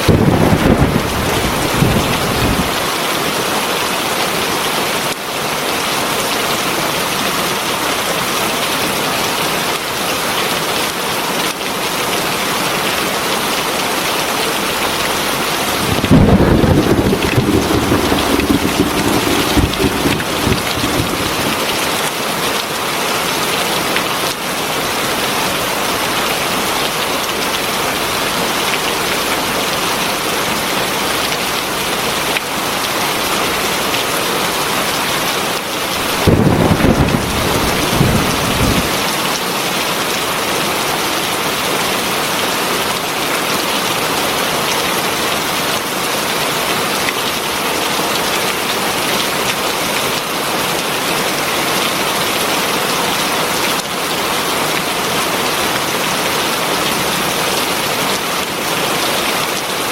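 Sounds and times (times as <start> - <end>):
heavy rain falling: 0.0 - 3.0, 13.2 - 28.8, 31.9 - 59.9
thunder rumbling: 15.5 - 22.0.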